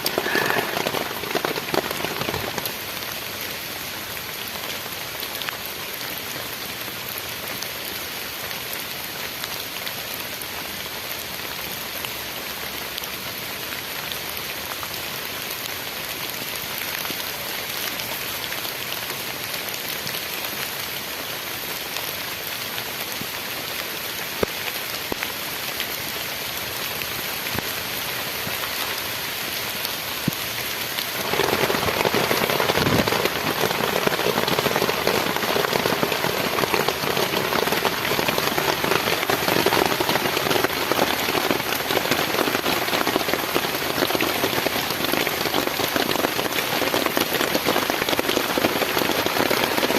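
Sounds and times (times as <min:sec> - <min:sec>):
sharp raindrop hits: 0:00.0 - 0:03.7, 0:30.2 - 0:49.9
heavy rain falling: 0:00.0 - 0:49.9.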